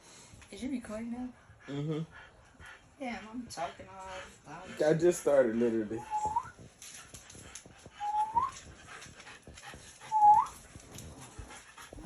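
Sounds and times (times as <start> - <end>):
dog whining: 8.0 - 8.6, 10.0 - 12.0.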